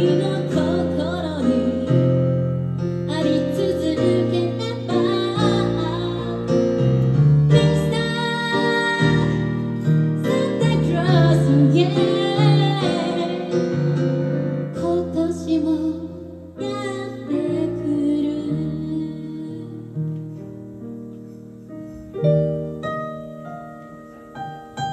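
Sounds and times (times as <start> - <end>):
sustained piano chords: 0.0 - 24.9
person singing: 7.5 - 14.0.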